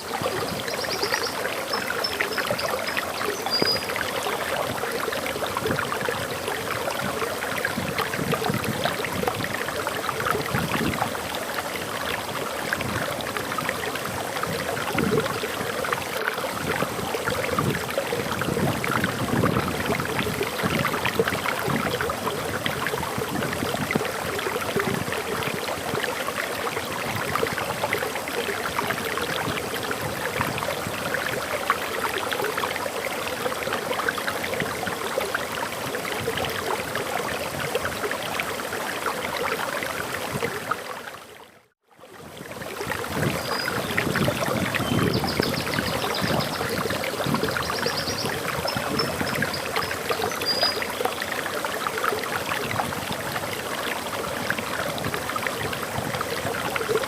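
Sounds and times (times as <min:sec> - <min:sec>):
waterfall flowing: 0:00.0 - 0:41.4, 0:42.2 - 0:57.0
faint high bird chirps: 0:00.4 - 0:04.2, 0:47.4 - 0:50.8.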